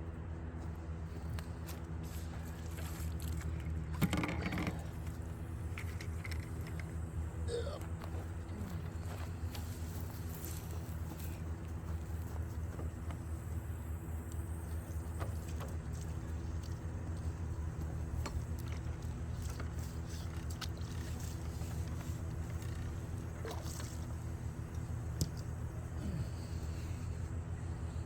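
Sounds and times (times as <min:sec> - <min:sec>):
low engine hum: 0:00.0 - 0:28.0
faint clicks and scrapes: 0:18.1 - 0:25.6.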